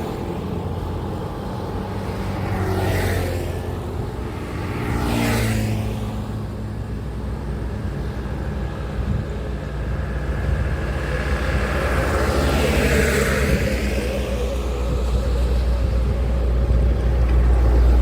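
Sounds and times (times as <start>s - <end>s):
heavy engine hum: 0.0s - 18.0s
vehicle tyre rush passing: 0.0s - 18.0s.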